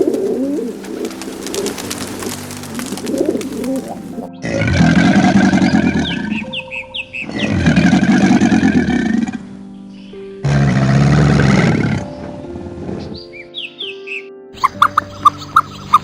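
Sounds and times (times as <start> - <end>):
pigeons cooing: 0.0 - 9.5
dense low animal sound: 0.0 - 9.6.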